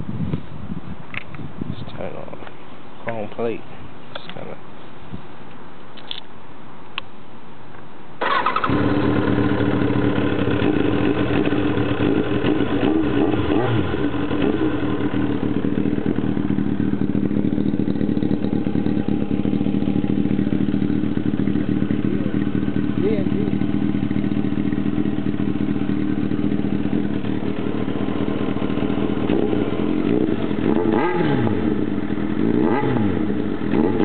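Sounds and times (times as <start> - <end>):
motorcycle engine cranking: 8.2 - 12.6
motorcycle engine idling: 8.2 - 34.0.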